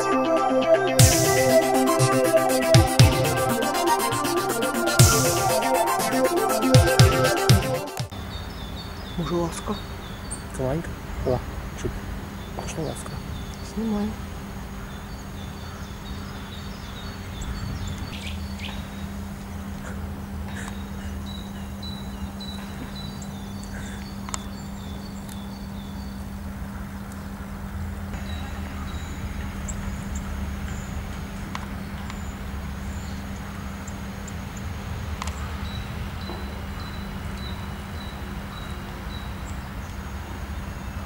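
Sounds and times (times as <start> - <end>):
small birds singing and chirping: 8.1 - 41.0
low hum and rumble: 10.0 - 41.0.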